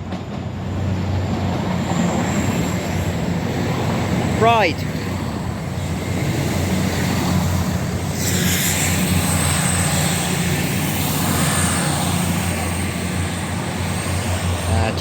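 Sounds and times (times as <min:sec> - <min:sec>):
train diesel engines droning: 0:00.0 - 0:15.0
hiss: 0:08.0 - 0:11.8.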